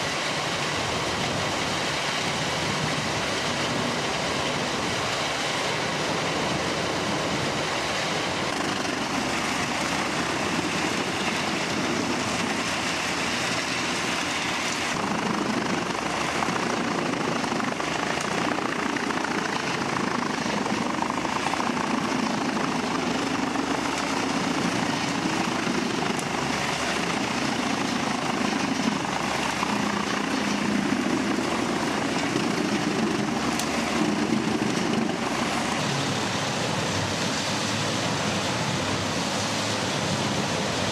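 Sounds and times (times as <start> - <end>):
wood-chipping machinery grinding: 8.5 - 35.8.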